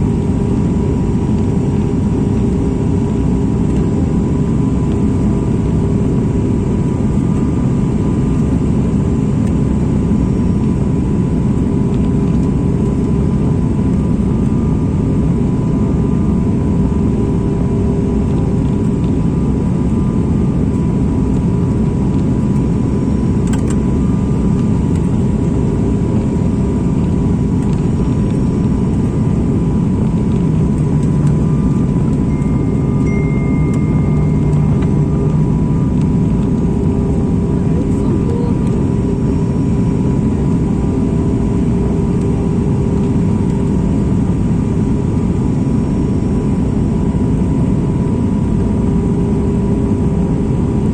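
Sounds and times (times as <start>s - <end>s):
airliner cabin engine drone: 0.0s - 50.9s
thin high tone: 32.2s - 36.1s.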